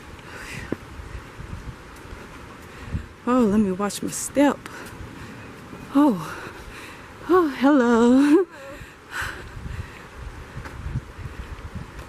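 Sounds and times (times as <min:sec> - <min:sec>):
footsteps on a trail: 0:00.0 - 0:06.8, 0:10.0 - 0:12.0
outdoor hiss: 0:00.0 - 0:12.0.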